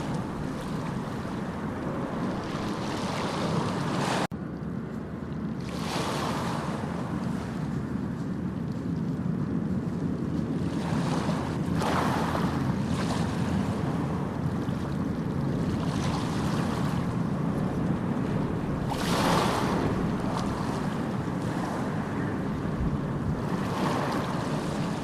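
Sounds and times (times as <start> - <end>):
waves breaking with hiss: 0.0 - 4.3, 15.4 - 25.0
low rumble of surf: 0.0 - 25.0.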